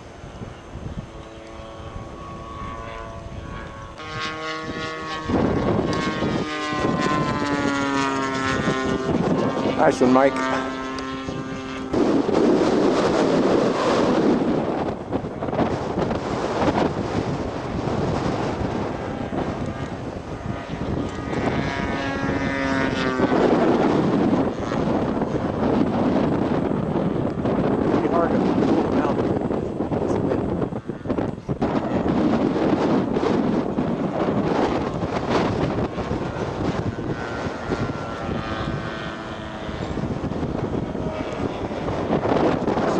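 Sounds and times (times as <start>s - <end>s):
model airplane engine: 0.0s - 42.9s
wind buffeting microphone: 0.0s - 42.9s.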